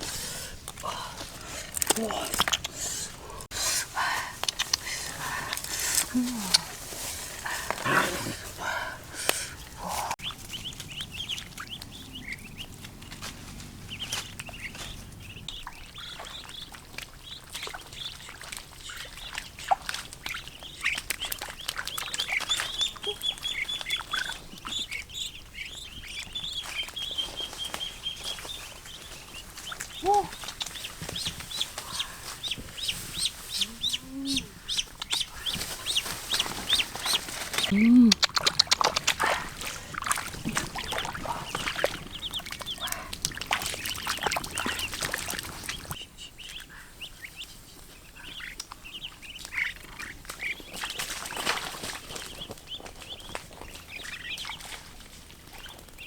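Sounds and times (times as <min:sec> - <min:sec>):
ducks calling: 0:01.2 - 0:56.0
high birdsong chirps: 0:09.6 - 0:56.0.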